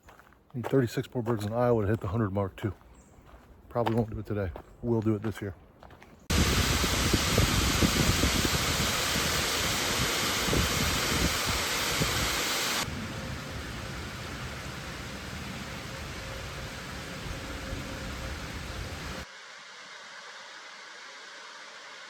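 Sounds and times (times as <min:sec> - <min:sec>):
low rumbling: 0:06.3 - 0:19.2
rushing hiss: 0:06.3 - 0:22.0.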